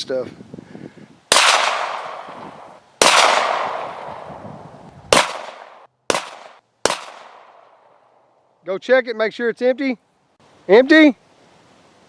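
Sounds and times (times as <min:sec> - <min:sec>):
pistol shots: 0:01.3 - 0:02.4, 0:03.0 - 0:04.3, 0:05.1 - 0:07.7.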